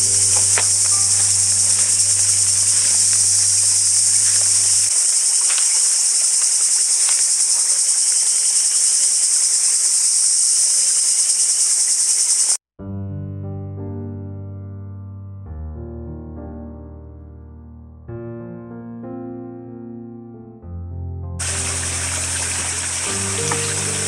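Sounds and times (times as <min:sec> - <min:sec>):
insects chirping shrilly: 0:00.0 - 0:12.6, 0:21.4 - 0:24.0
soft background music: 0:21.6 - 0:24.0.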